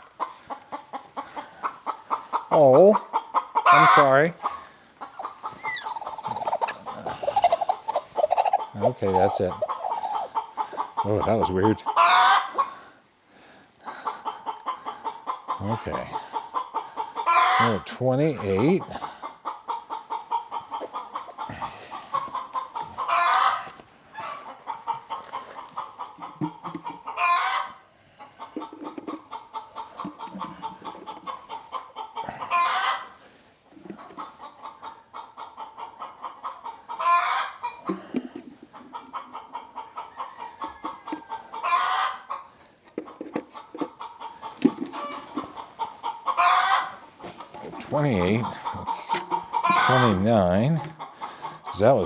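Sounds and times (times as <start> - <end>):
chickens clucking: 0.0 - 52.0
chicken long call: 5.4 - 10.9, 32.2 - 33.1, 46.3 - 47.0, 48.9 - 50.2.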